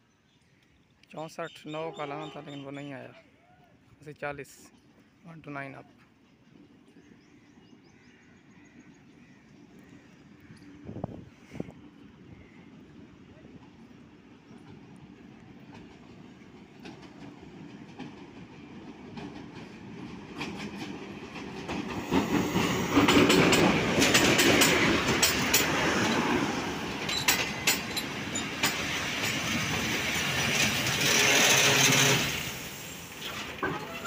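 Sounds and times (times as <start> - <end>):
diesel locomotive passing: 9.5 - 34.0
wheels clicking over rail joints: 14.5 - 34.0.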